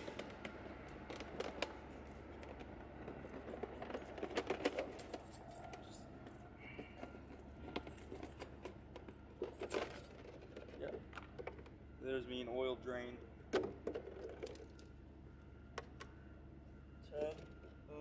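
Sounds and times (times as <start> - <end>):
low rumble of truck traffic: 0.0 - 18.0
hand tools clinking and rattling: 3.0 - 6.0, 6.7 - 10.9.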